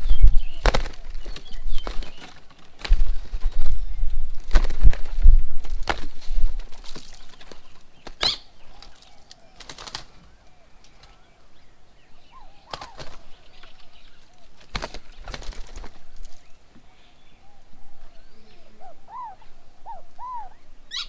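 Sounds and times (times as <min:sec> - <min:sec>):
bird wings flapping: 0:00.0 - 0:11.2, 0:12.5 - 0:16.6
faint bird calls: 0:07.4 - 0:21.0.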